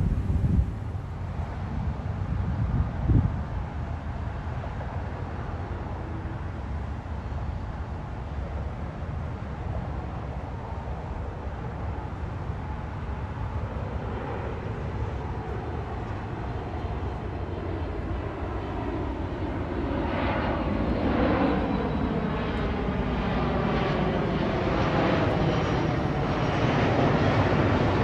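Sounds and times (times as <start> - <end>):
steady low rumble: 0.0 - 1.8
approaching jet airliner engine: 0.0 - 28.0.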